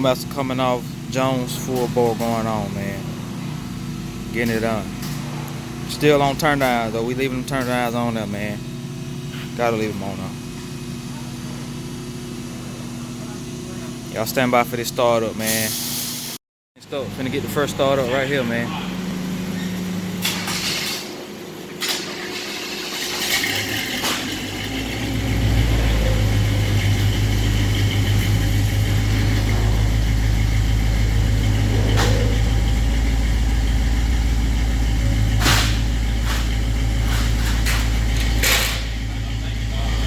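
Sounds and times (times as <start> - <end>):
truck engine starting and idling: 0.0 - 15.5, 16.9 - 40.0.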